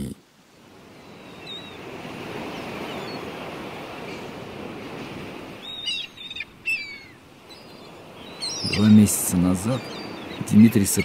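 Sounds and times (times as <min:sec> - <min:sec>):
sea surf washing: 0:00.0 - 0:11.0
short falling bird calls: 0:05.6 - 0:09.2, 0:09.8 - 0:11.0.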